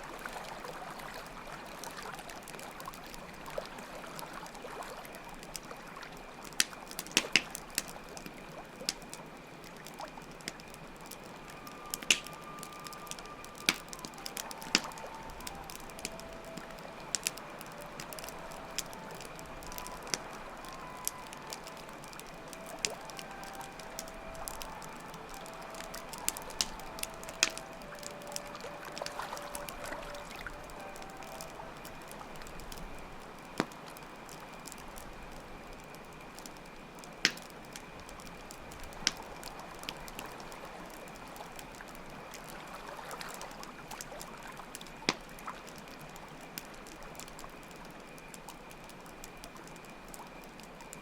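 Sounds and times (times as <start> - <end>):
running water: 0.0 - 34.8
campfire crackling: 0.0 - 51.0
flute playing slow melody: 0.0 - 51.0
crickets chirping: 7.5 - 50.9.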